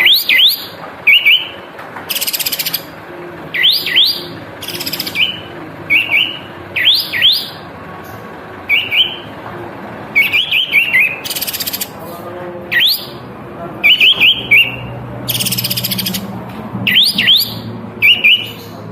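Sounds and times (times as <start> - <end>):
songbird whistled notes: 0.0 - 2.9, 3.5 - 7.6, 8.7 - 9.2, 10.2 - 12.0, 12.7 - 13.2, 13.8 - 16.3, 16.9 - 18.8.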